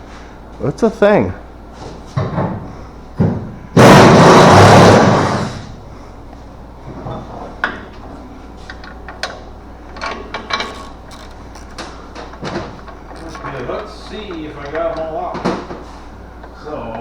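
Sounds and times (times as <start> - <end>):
air impact wrench: 3.8 - 5.8
tools clinking and knocking: 8.7 - 17.0.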